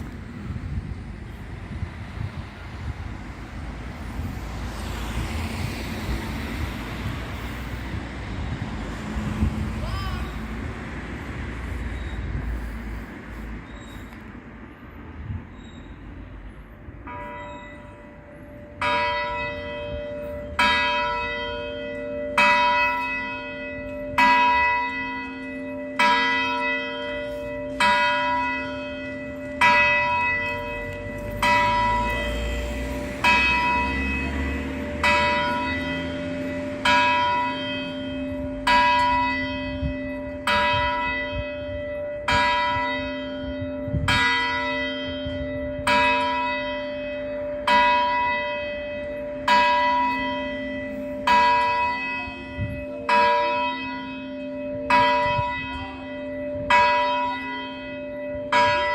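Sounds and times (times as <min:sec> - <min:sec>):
church bell striking: 0:17.1 - 0:58.9.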